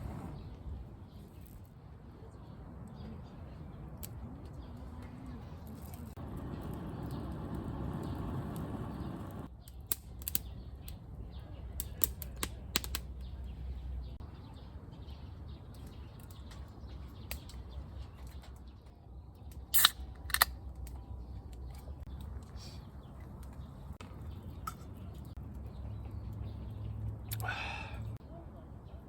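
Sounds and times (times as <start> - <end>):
sharp clicks and snaps: 9.4 - 11.0, 11.8 - 13.4, 19.4 - 22.5.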